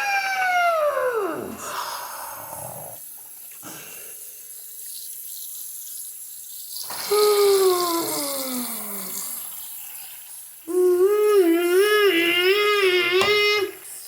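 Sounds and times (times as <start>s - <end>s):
falling wailing cry: 0.0s - 1.6s
water running from a tap: 2.9s - 14.0s.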